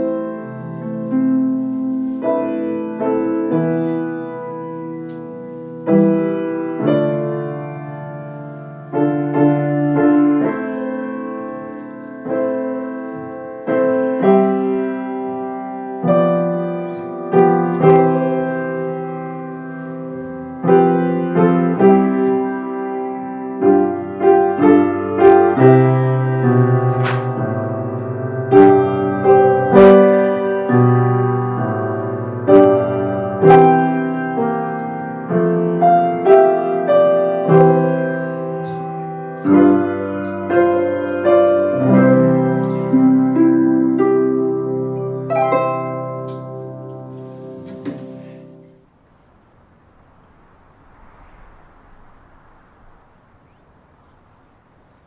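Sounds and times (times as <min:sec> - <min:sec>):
gentle solo instrumental melody: 0:38.3 - 0:48.8.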